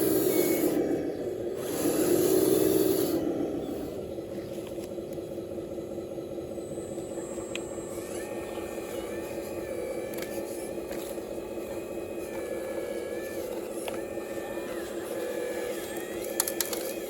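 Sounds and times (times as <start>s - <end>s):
excavator humming: 0.0s - 17.0s
wavering whine: 0.0s - 17.0s
hiss: 1.6s - 4.0s.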